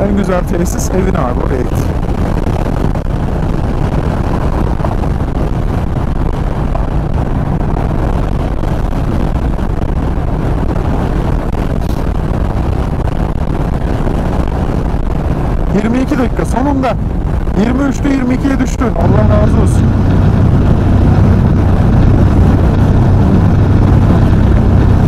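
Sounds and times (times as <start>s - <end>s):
man talking: 0.0s - 1.9s, 15.7s - 19.9s
motorcycle engine drone: 0.0s - 25.0s
wind rush on microphone: 0.0s - 25.0s.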